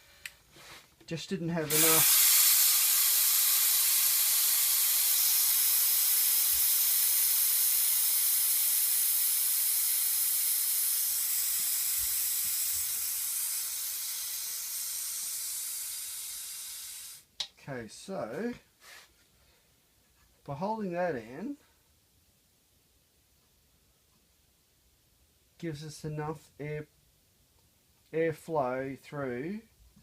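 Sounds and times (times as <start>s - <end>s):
compressed air hissing: 1.6s - 17.3s.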